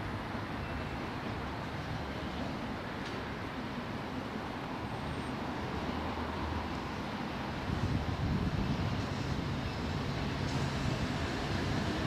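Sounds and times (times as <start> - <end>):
electric train running on tracks: 0.0 - 12.0.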